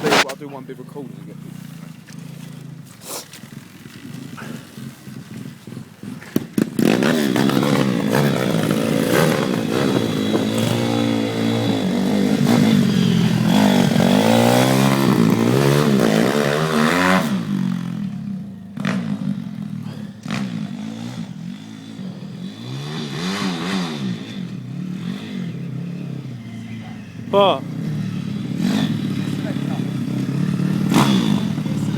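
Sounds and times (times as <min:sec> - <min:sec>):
pit bike engine revving: 0:00.0 - 0:31.9.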